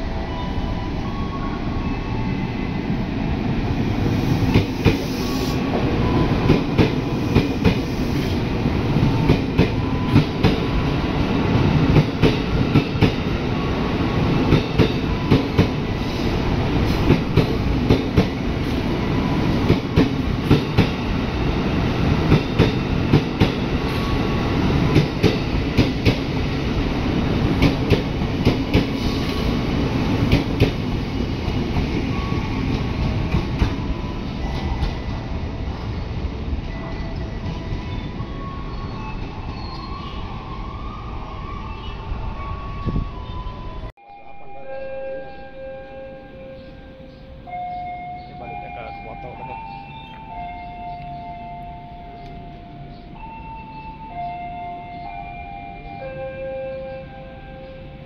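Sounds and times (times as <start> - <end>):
train wheels rumbling on rail: 0.9 - 43.9.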